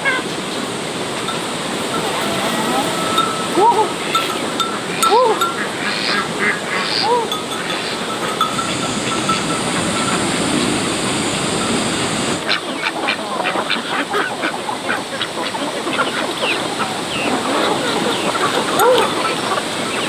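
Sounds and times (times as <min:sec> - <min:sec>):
ducks quacking: 0:01.8 - 0:20.0
steady hiss: 0:05.6 - 0:12.5.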